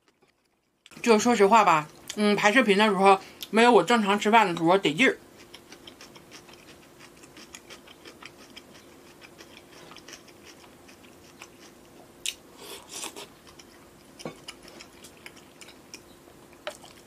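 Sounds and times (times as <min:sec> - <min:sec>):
faint steady hum: 0:00.0 - 0:17.0
mouth chewing and biting: 0:05.3 - 0:17.0.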